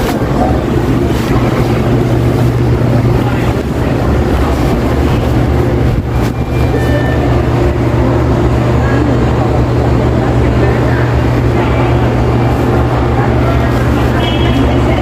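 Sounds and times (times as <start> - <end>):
shop noise: 0.0 - 15.0
steady low hum: 0.0 - 15.0.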